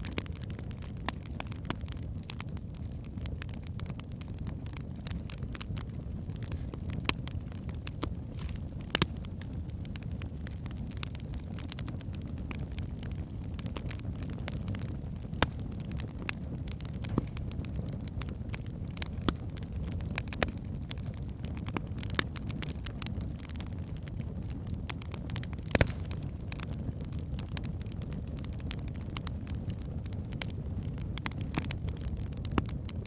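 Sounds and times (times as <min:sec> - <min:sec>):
fire flames rumbling: 0:00.0 - 0:33.0
logs crackling and popping: 0:00.0 - 0:33.0.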